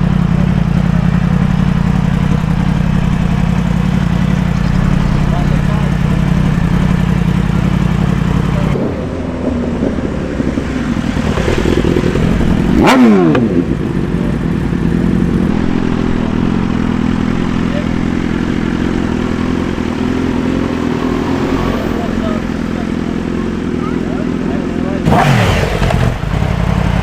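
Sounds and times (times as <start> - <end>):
engines idling: 0.0 - 27.0
motorcycle accelerating past: 7.6 - 22.4, 25.0 - 27.0.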